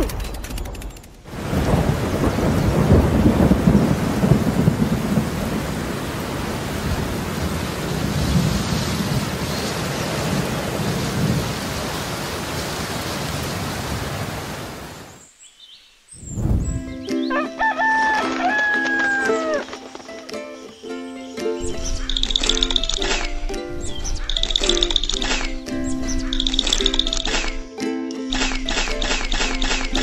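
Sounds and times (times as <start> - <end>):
thunder rumbling: 0.0 - 14.9, 21.6 - 27.3
heavy rain: 1.3 - 15.3, 21.6 - 27.5
music: 16.6 - 30.0.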